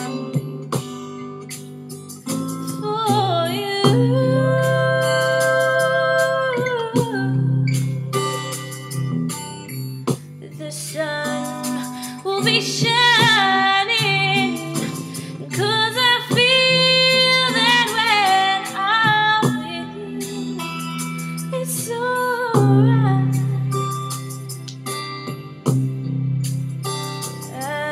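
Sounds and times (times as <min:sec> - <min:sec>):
woman singing a slow ballad: 0:00.0 - 0:00.8, 0:02.3 - 0:08.4, 0:10.4 - 0:24.1, 0:27.4 - 0:27.9
karaoke instrumental backing track: 0:00.0 - 0:27.9.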